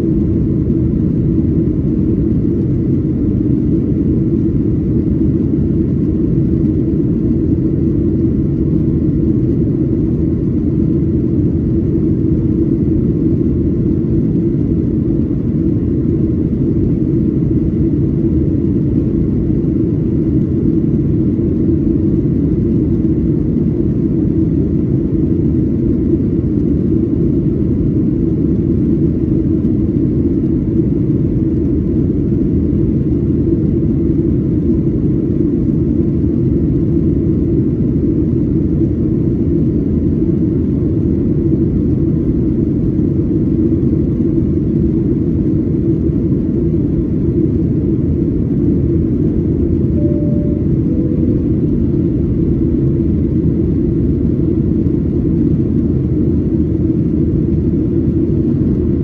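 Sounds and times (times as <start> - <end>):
airplane cabin roar: 0.0 - 59.0
faint high whine: 49.6 - 53.8.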